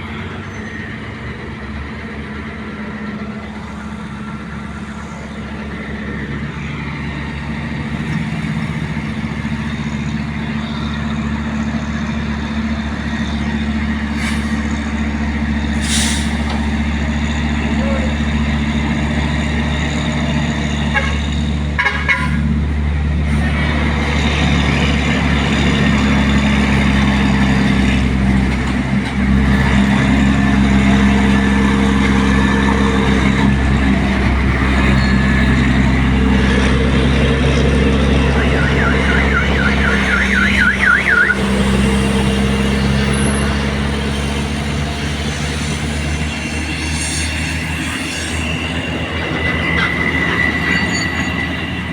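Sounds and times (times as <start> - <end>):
truck diesel engine running: 0.0 - 51.9
fast warbling high tone: 38.2 - 41.4.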